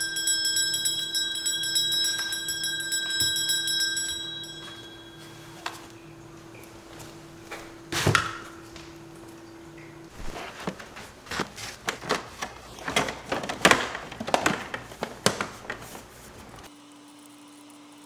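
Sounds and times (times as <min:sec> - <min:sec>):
faint steady hum: 0:00.0 - 0:16.7
clicks and knocks of parts: 0:10.1 - 0:16.7.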